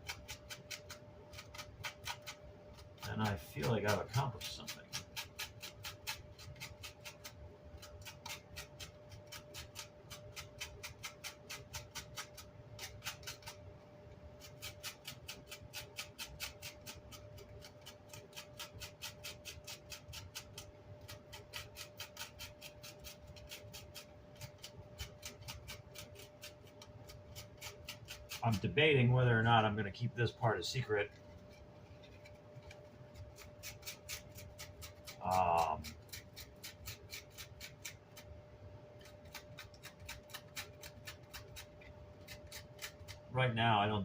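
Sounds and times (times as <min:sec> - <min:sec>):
scrubbing on grill cloth: 0:01.4 - 0:11.7.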